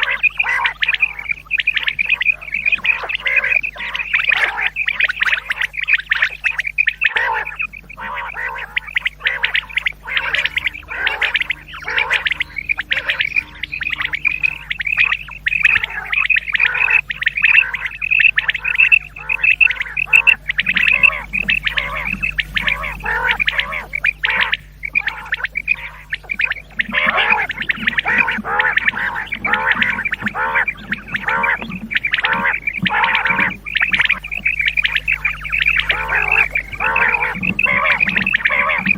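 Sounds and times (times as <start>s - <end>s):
faint low hum: 0.0s - 38.9s
recorded quail calls: 0.0s - 38.9s.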